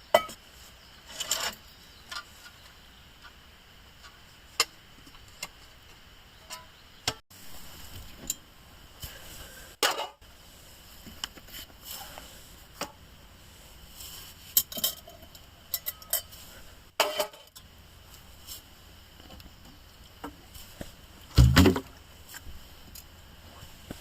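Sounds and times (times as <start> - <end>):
cookware and utensils clinking: 14.6 - 16.4
heavy thump: 21.3 - 21.9.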